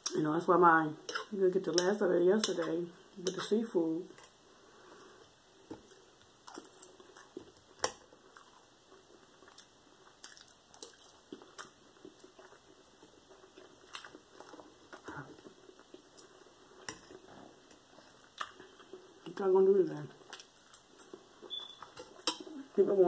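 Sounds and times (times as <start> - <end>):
person chewing food: 4.2 - 19.3, 20.2 - 22.5.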